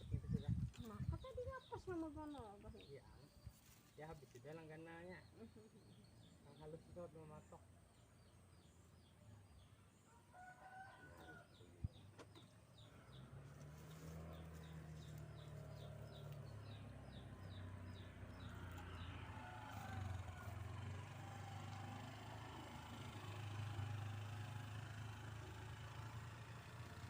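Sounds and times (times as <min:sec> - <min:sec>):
faint rooster crowing: 0:10.1 - 0:11.8, 0:18.7 - 0:21.0
low motor hum: 0:11.2 - 0:27.0.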